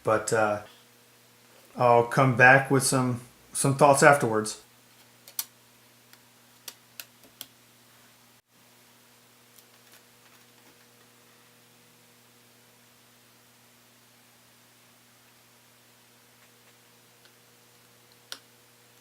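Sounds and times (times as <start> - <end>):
faint electrical hum: 0.0 - 19.0.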